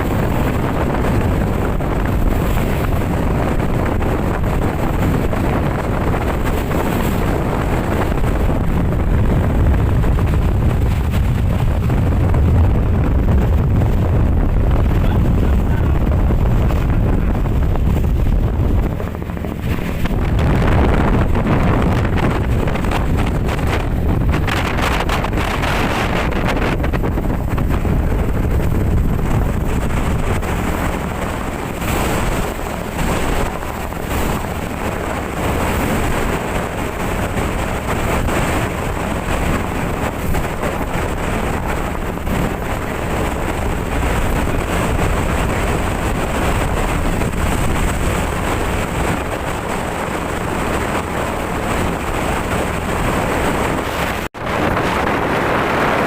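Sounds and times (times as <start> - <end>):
boat engine running: 0.0 - 56.0
waves: 0.0 - 56.0
wind on microphone: 0.0 - 56.0.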